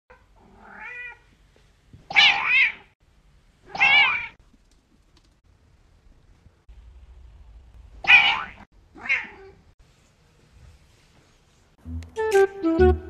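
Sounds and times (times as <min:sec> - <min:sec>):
cat meowing: 0:03.7 - 0:04.4, 0:08.1 - 0:09.6.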